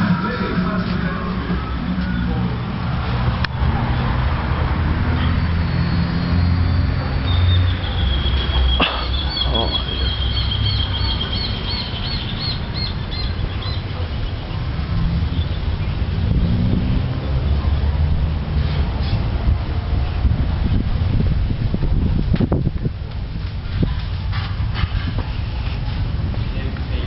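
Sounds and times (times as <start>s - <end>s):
bird chirping: 6.4s - 14.6s
wind rumble: 14.4s - 27.0s.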